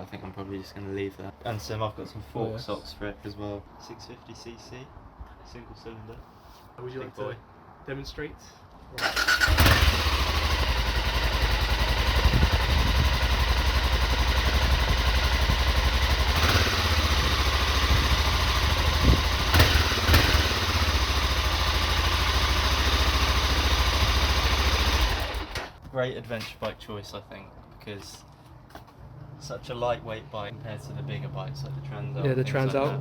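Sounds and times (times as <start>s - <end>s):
motorcycle engine starting and idling: 9.0s - 25.8s.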